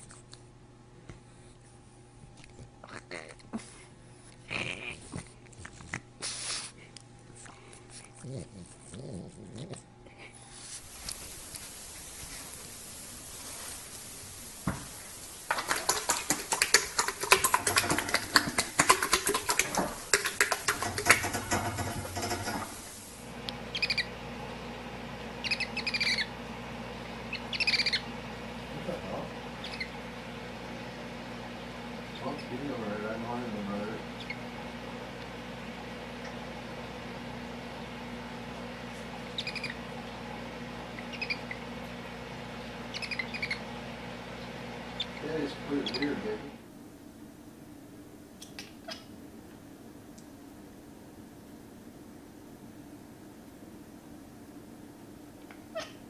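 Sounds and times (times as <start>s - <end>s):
horse lips smacking and clicking: 15.5s - 22.4s
hedgehog chirping: 23.7s - 24.1s, 25.4s - 26.3s, 27.3s - 28.1s, 29.6s - 30.0s, 34.2s - 34.4s, 39.3s - 39.8s, 40.9s - 41.7s, 42.9s - 43.7s, 44.9s - 46.4s.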